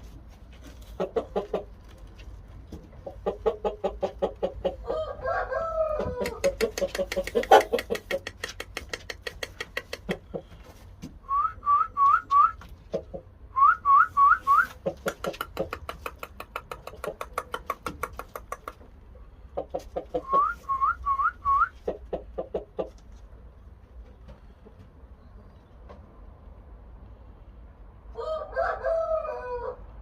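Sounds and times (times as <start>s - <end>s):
chickens clucking: 0.0s - 26.4s.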